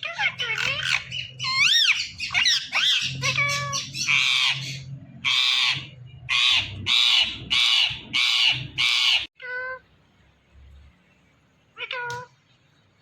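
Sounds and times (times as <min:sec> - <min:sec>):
parakeet squawks: 0:00.0 - 0:09.8
parakeet whistling: 0:00.4 - 0:09.3.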